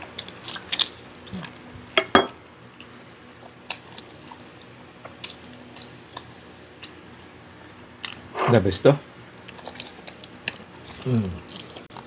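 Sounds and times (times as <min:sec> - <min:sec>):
wet chewing and lip smacks: 0:02.8 - 0:08.3, 0:09.2 - 0:12.0.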